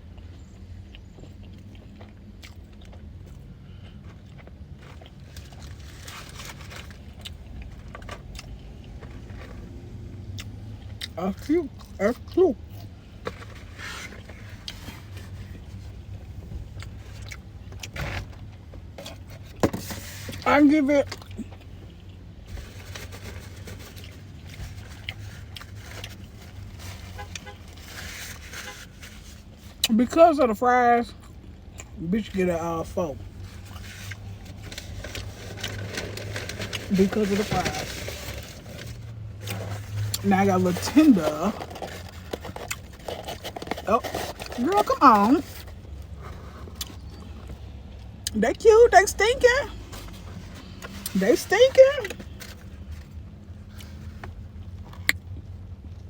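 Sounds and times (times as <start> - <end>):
person chewing: 0.0 - 6.0, 7.0 - 11.2, 41.6 - 44.5.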